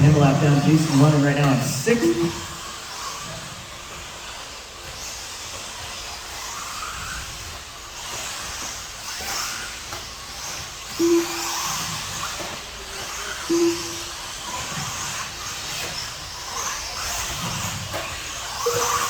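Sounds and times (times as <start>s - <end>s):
short flat beeps: 0.0s - 2.6s, 11.0s - 11.9s, 13.5s - 14.2s, 18.6s - 19.0s
small motors and tyres whirring: 2.5s - 19.0s.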